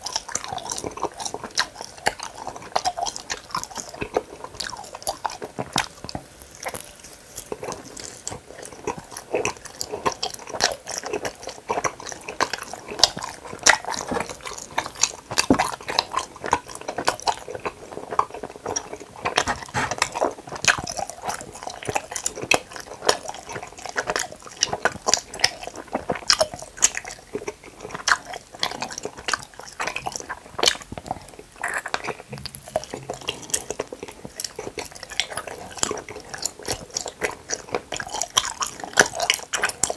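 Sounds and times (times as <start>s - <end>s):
chewing gummy candies: 0.0s - 39.9s.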